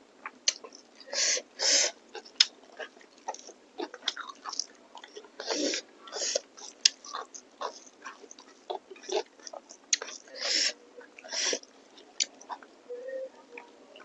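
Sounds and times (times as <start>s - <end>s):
wet mouth clicks and smacks: 0.2s - 0.7s, 2.2s - 10.3s
chewing and biting: 0.2s - 12.7s.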